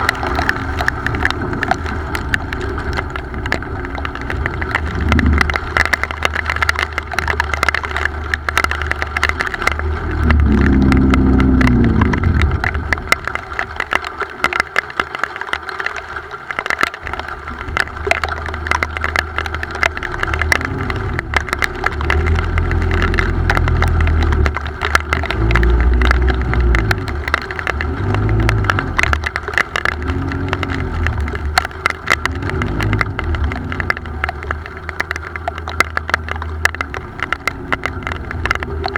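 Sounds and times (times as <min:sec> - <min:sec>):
motor engine running: 0:00.0 - 0:07.6, 0:08.2 - 0:13.7
crackle of small ticks: 0:00.0 - 0:38.9.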